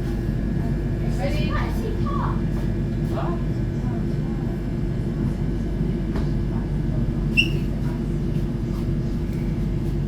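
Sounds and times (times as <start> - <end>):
short high squeak: 7.4 - 7.7.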